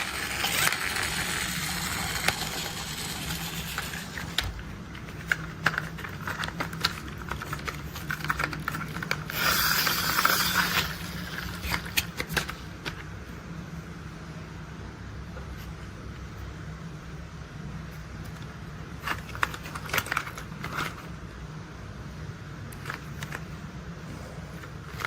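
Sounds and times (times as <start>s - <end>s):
toy vehicles clicking and knocking: 0.0s - 4.5s, 5.2s - 12.5s.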